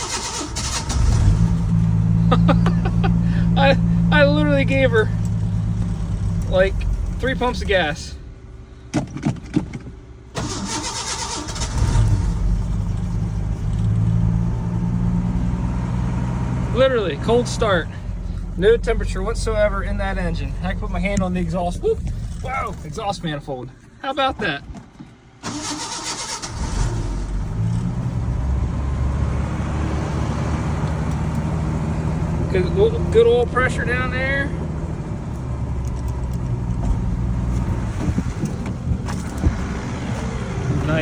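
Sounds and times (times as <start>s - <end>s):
starter motor cranking: 0.0s - 1.9s, 10.3s - 14.4s, 25.4s - 27.9s
engine cranking on starter: 0.0s - 8.1s, 10.3s - 15.0s, 16.6s - 23.5s, 25.4s - 28.2s
truck engine idling: 0.0s - 41.0s.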